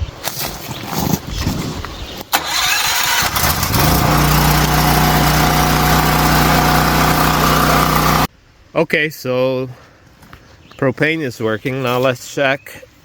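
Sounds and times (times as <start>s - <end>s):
generator engine running: 2.4s - 8.3s.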